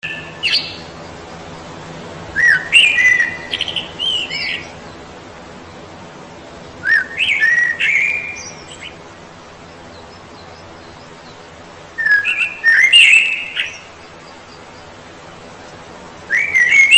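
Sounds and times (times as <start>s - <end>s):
songbird whistling: 0.0s - 1.0s, 2.3s - 4.8s, 6.8s - 9.0s, 9.9s - 14.8s, 16.2s - 16.9s.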